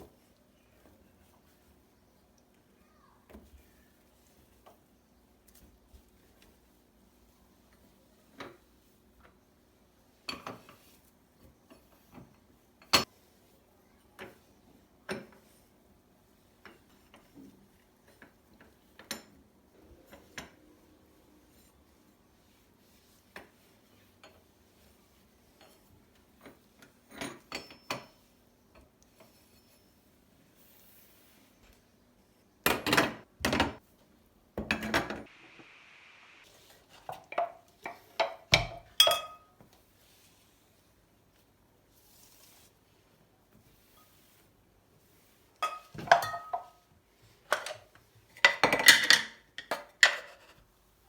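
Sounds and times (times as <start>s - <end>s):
dishes and cutlery clinking: 15.0s - 15.6s, 25.5s - 29.8s, 37.0s - 39.6s, 45.6s - 46.9s, 47.5s - 50.6s
short hiss: 35.3s - 36.5s
dishes clattering: 37.1s - 39.5s, 45.6s - 46.8s, 47.5s - 50.5s.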